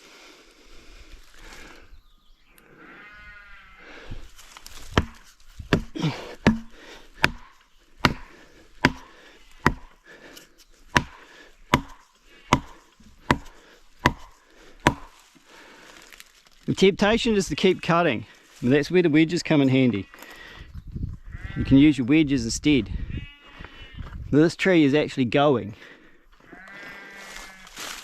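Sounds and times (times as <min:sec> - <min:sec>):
hammer striking felling wedge: 0:04.6 - 0:10.0, 0:10.9 - 0:15.2.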